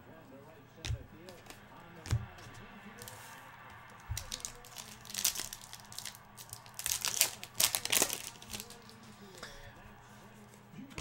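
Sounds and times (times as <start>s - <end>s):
foil wrapper crinkling and tearing: 4.0s - 9.3s.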